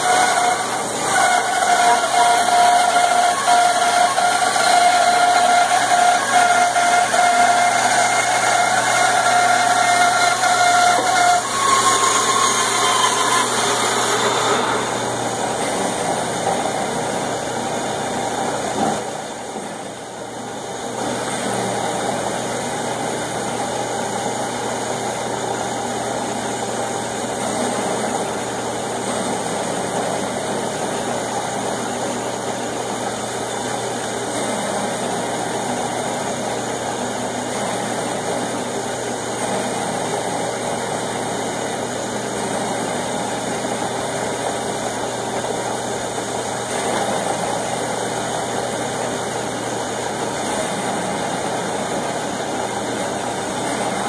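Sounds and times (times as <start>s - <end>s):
band saw cutting wood: 0.0s - 24.3s.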